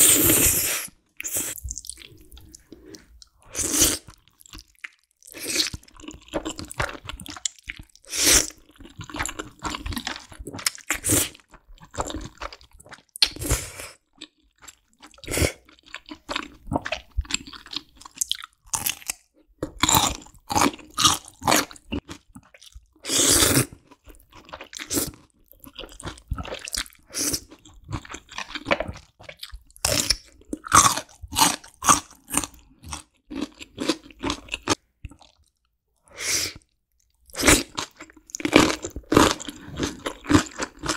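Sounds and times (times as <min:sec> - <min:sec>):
wet chewing of noodles: 0:00.0 - 0:35.6, 0:36.5 - 0:40.9.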